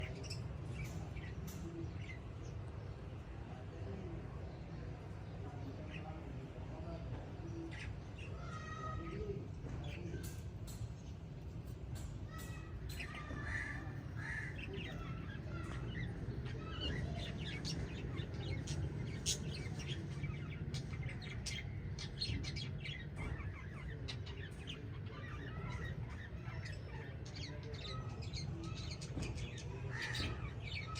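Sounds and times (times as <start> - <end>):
birds chirping: 0.0 - 30.9.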